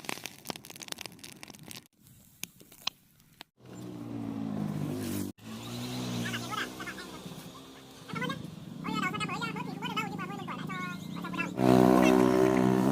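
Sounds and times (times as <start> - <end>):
motorbike engine running: 3.6 - 12.9.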